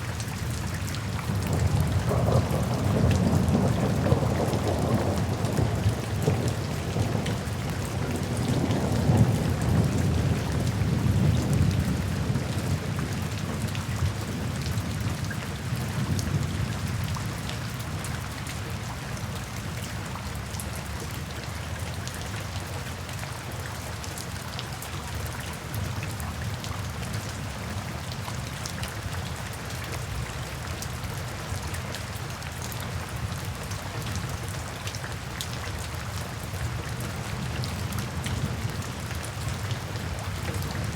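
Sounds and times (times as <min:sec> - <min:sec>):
steady rain: 0:00.0 - 0:40.9
thunder rolling: 0:01.4 - 0:10.6.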